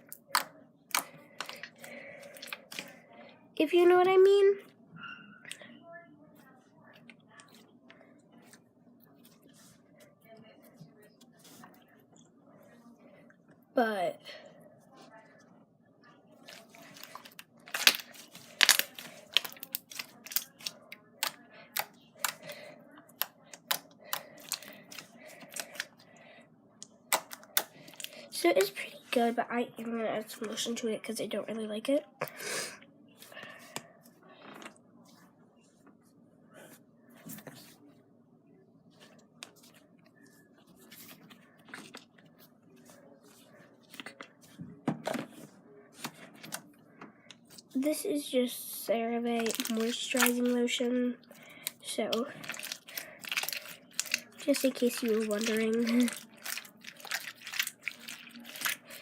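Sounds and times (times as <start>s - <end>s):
slime clicking and popping: 17.7s - 22.4s.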